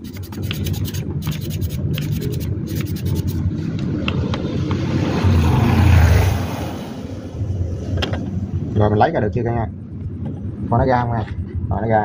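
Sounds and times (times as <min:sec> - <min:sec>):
sandpaper scraping on metal: 0:00.0 - 0:03.4.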